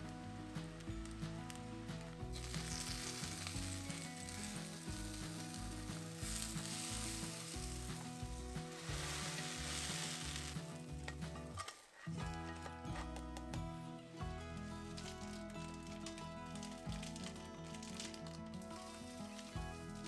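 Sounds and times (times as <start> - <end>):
bread sizzling in a skillet: 0.6 - 11.0, 16.4 - 20.0.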